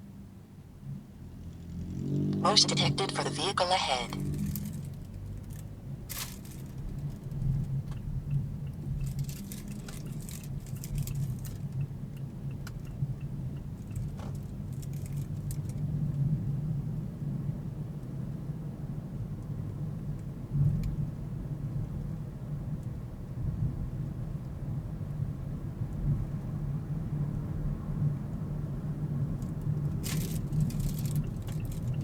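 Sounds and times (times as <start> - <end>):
small clicks and rattles: 9.0 - 11.8, 13.9 - 15.8.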